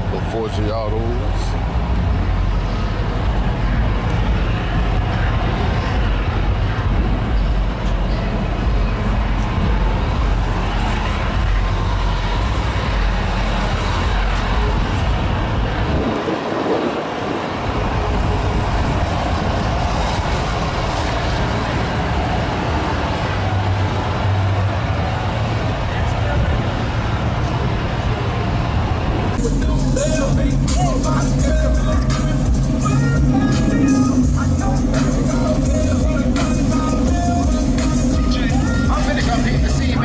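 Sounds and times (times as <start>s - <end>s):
car engine idling: 17.0s - 40.0s.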